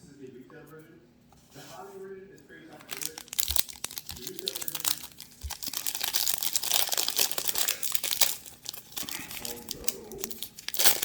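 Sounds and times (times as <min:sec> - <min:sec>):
cellophane crinkling: 0:02.7 - 0:11.0.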